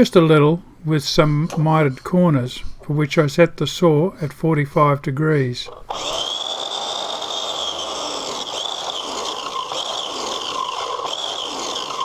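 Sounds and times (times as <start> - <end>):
miter saw cutting wood: 5.7 - 12.0.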